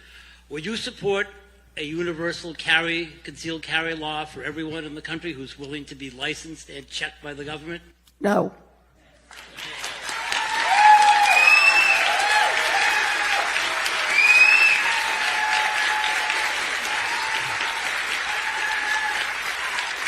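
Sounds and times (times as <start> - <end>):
audience applauding: 9.2 - 20.0
audience cheering and whooping: 9.5 - 20.0.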